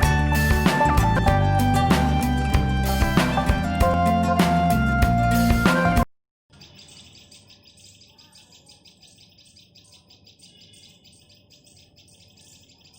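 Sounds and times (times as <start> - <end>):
short high bird chirps: 6.5 - 12.9.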